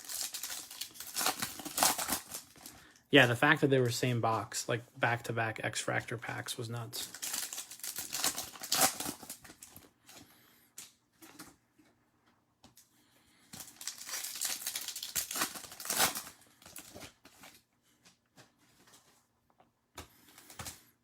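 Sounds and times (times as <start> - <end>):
wrappers crinkling and tearing: 0.0 - 3.5, 7.0 - 10.2, 13.5 - 17.7.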